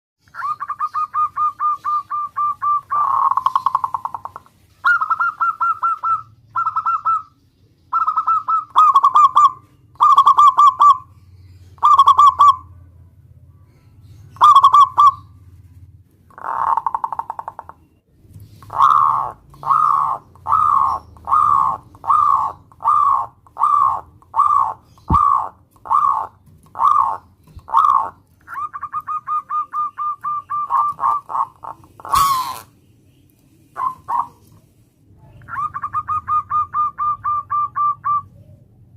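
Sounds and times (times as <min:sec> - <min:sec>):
dove cooing: 0:00.3 - 0:07.3, 0:07.9 - 0:11.1, 0:11.8 - 0:12.7, 0:14.4 - 0:15.3, 0:16.3 - 0:17.7, 0:18.5 - 0:32.7, 0:33.7 - 0:34.6, 0:35.3 - 0:38.9.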